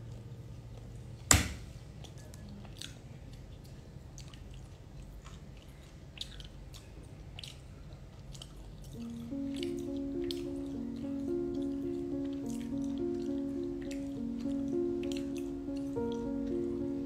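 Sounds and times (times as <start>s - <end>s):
person chewing with mouth clicks: 2.1s - 9.0s
background music: 9.0s - 17.0s.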